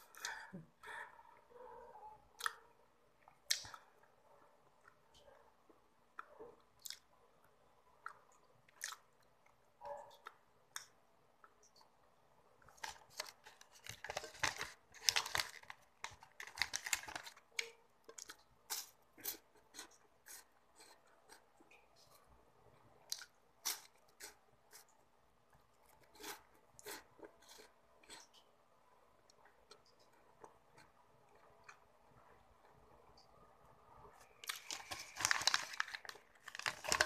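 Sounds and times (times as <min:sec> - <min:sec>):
chewing and crunching wafers: 0:06.1 - 0:11.9, 0:12.6 - 0:22.3, 0:23.0 - 0:28.5, 0:34.1 - 0:37.0.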